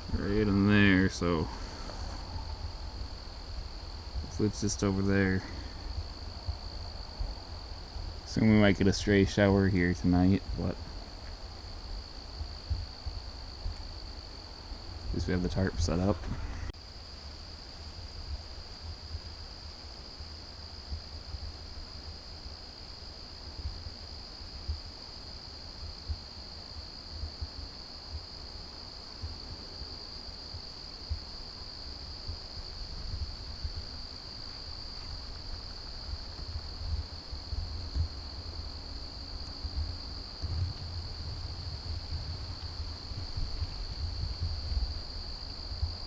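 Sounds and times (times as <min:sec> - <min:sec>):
wind gusting on microphone: 0:00.0 - 0:16.8, 0:32.2 - 0:46.0
insect chorus trilling: 0:00.0 - 0:16.9, 0:25.9 - 0:46.0.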